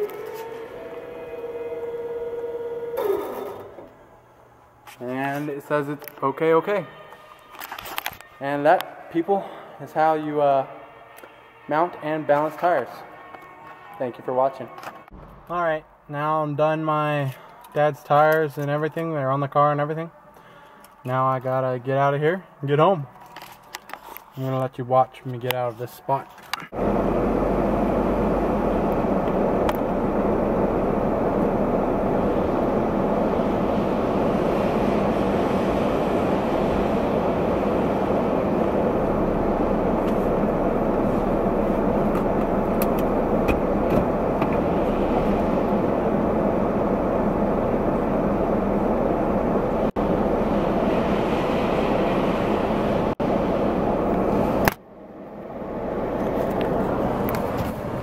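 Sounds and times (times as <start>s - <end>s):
car road and engine noise: 26.7s - 58.0s.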